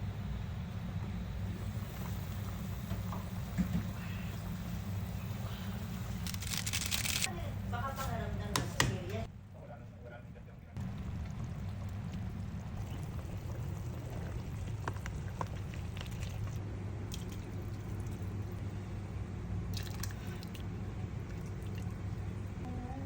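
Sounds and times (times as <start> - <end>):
steady low hum: 0.0 - 23.0
wet squishing and dripping: 11.1 - 18.5, 19.7 - 22.0.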